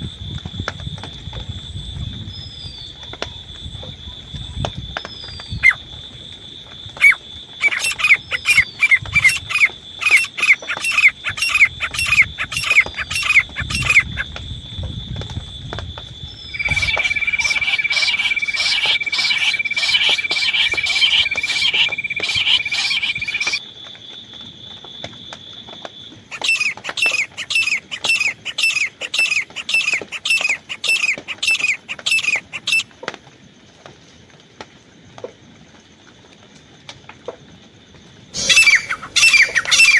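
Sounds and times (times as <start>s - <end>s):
bird calling sharp falling notes: 16.5s - 23.6s, 38.4s - 39.9s
steady high whistle: 16.5s - 23.6s.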